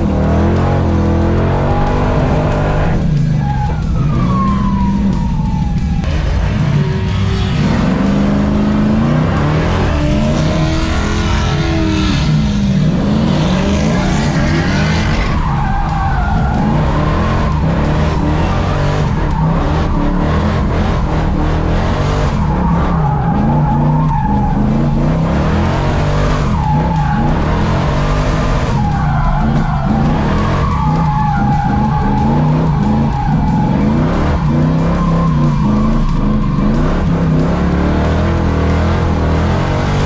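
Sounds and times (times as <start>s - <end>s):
muscle car engines revving: 0.0s - 40.0s
tires squealing: 0.0s - 40.0s.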